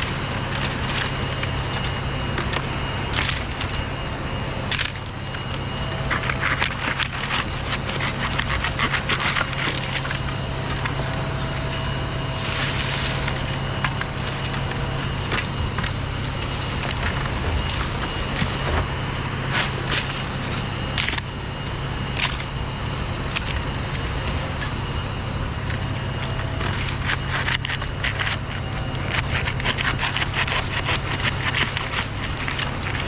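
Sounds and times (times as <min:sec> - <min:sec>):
low motor hum: 0:00.0 - 0:33.0
dry palm fronds cracking: 0:06.0 - 0:11.8, 0:12.4 - 0:21.3, 0:26.6 - 0:33.0
fronds rustling: 0:06.2 - 0:21.2.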